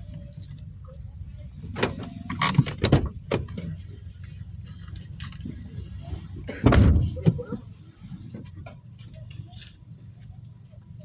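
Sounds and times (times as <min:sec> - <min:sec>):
door clunks and knocks: 0:02.6 - 0:03.5, 0:06.6 - 0:07.4.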